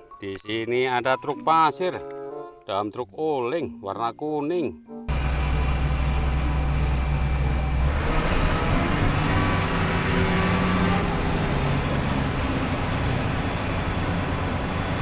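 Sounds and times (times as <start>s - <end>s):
vehicle rumble: 5.1s - 15.0s.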